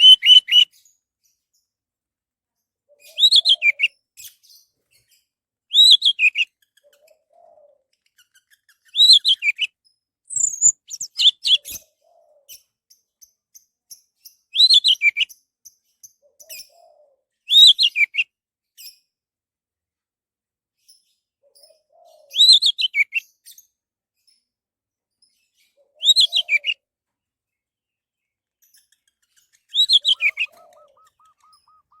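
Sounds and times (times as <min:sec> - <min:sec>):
thrush whistled song: 0:00.0 - 0:00.7, 0:05.7 - 0:06.5, 0:29.7 - 0:32.0.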